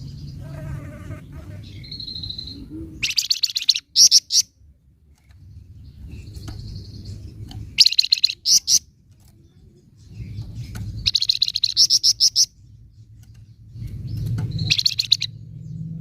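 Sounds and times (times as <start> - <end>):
bird harsh chattering calls: 0.2 - 4.5, 6.1 - 8.9, 10.1 - 15.4
low rumble: 12.6 - 16.0.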